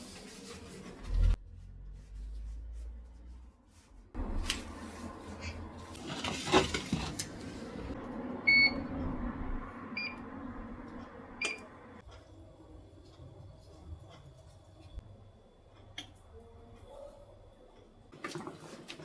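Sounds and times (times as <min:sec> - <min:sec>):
handling and clattering: 0:04.2 - 0:07.9
appliance beeps: 0:08.4 - 0:08.9, 0:10.0 - 0:10.3, 0:11.4 - 0:11.8.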